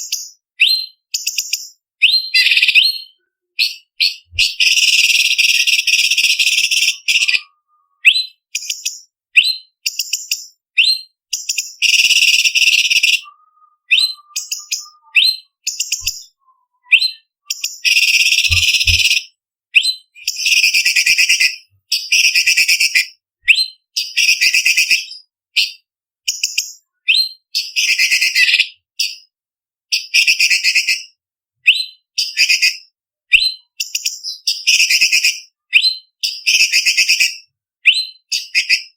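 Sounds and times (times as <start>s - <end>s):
bird singing harsh trills: 0.0s - 25.3s
bird whistled notes: 0.1s - 25.7s.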